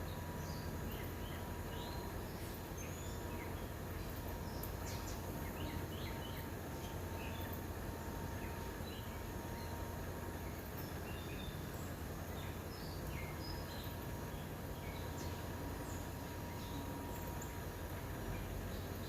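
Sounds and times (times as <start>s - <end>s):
low background hum: 0.0s - 19.0s
small birds chirping: 0.0s - 19.0s.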